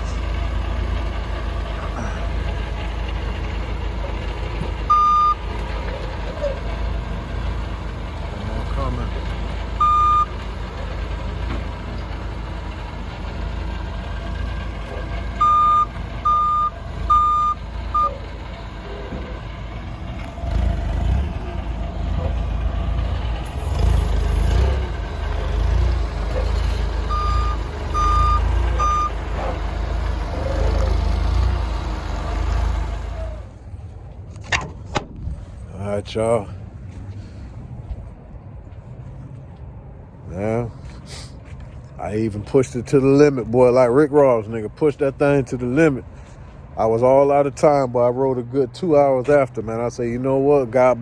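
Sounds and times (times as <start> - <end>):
low engine rumble: 0.0 - 51.0
vehicle backup alarm beeping: 4.1 - 6.6, 9.6 - 11.0, 14.6 - 18.5, 26.6 - 29.6.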